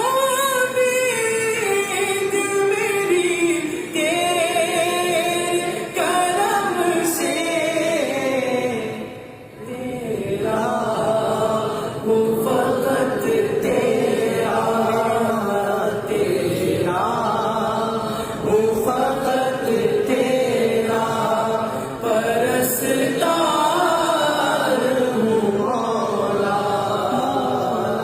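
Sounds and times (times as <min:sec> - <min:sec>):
person chanting devotionally: 0:00.0 - 0:28.0.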